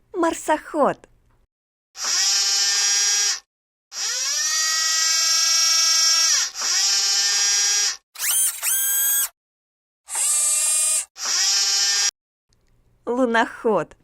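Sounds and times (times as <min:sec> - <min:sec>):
whirring servo motor: 0:02.0 - 0:09.4, 0:10.1 - 0:12.1.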